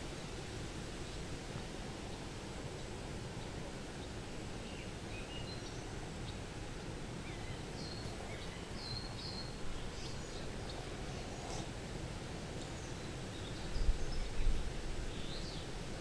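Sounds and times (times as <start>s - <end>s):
songbird chirping: 7.2s - 11.7s.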